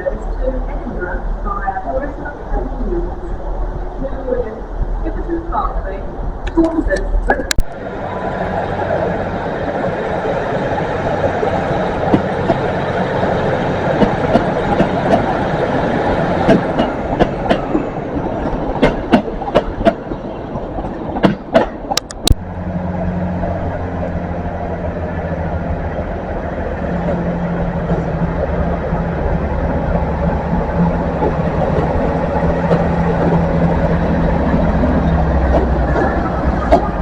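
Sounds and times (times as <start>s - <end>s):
train wheels rolling on rails: 0.0s - 37.0s
wheels clicking over rail joints: 11.2s - 22.3s, 29.8s - 37.0s
low engine hum: 22.0s - 37.0s.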